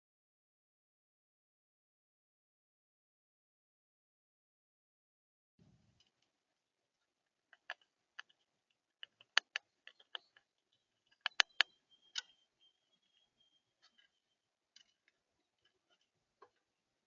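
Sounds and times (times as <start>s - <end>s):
birds pecking at seed: 7.0s - 16.7s.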